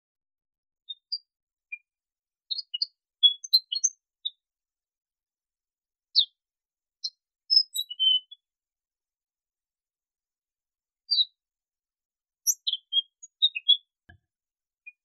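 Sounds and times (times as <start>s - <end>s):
bird chirping: 2.5s - 4.4s, 6.2s - 6.4s, 7.0s - 8.4s, 11.1s - 11.4s, 12.4s - 14.0s.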